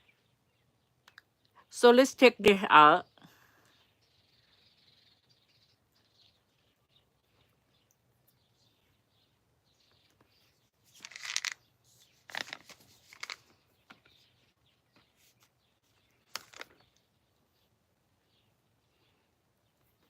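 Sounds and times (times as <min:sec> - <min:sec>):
packaging crinkling and rustling: 0:10.9 - 0:11.6, 0:12.2 - 0:13.5, 0:16.3 - 0:16.9.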